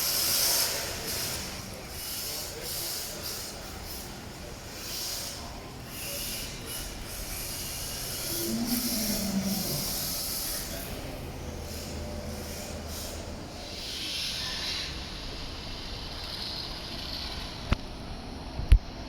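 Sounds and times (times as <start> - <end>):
rc car tyres hissing scrub: 0.0 - 17.7
wavering low tone: 8.2 - 13.4.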